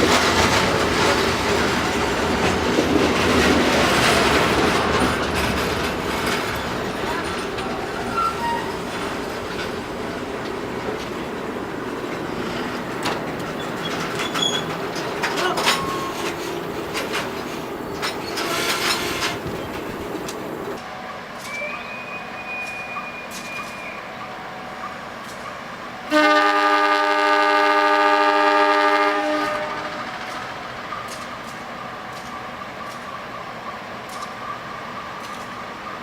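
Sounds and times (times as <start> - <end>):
train rumbling on rails: 0.0 - 36.0
locomotive horn chord: 18.4 - 19.9, 26.1 - 30.1.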